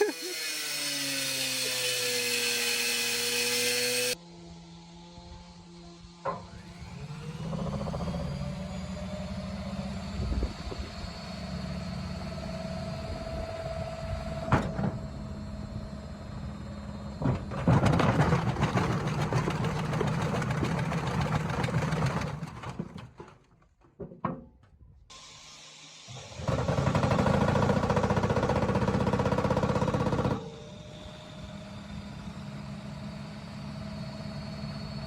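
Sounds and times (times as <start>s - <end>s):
washing machine motor whine: 3.2s - 17.5s, 25.1s - 35.0s
washing machine rattling and banging: 17.2s - 24.6s.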